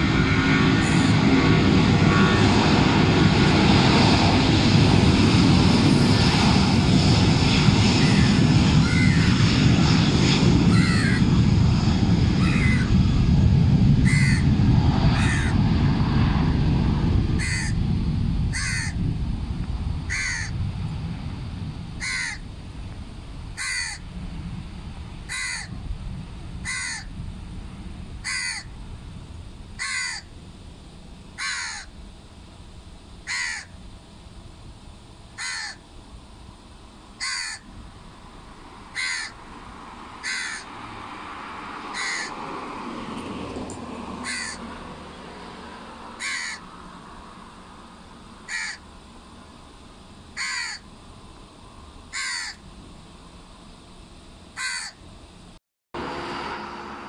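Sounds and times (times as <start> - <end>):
distant jet engines rumble: 0.0 - 57.0
bird calling: 8.0 - 9.4, 10.7 - 11.3, 12.4 - 12.9, 14.0 - 14.5, 15.1 - 15.6, 17.4 - 17.8, 18.5 - 19.0, 20.1 - 20.5, 22.0 - 22.5, 23.6 - 24.0, 25.3 - 25.7, 26.6 - 27.1, 28.2 - 28.7, 29.8 - 30.3, 31.4 - 31.9, 33.3 - 33.8, 35.4 - 35.8, 37.2 - 37.6, 39.0 - 39.4, 40.2 - 40.7, 42.0 - 42.4, 44.2 - 44.6, 46.2 - 46.7, 48.5 - 48.8, 50.4 - 50.9, 52.1 - 52.6, 54.6 - 55.0
rushing sound: 56.0 - 57.0.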